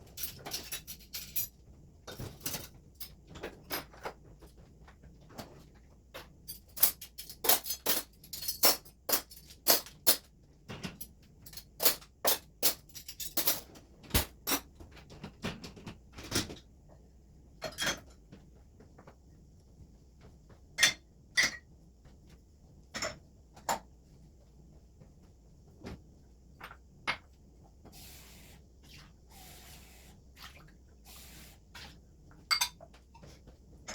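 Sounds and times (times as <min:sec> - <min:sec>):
dishes and glassware clinking: 0:00.1 - 0:01.5, 0:06.5 - 0:10.2, 0:10.8 - 0:14.7, 0:17.6 - 0:18.2, 0:20.8 - 0:21.6, 0:32.4 - 0:33.3.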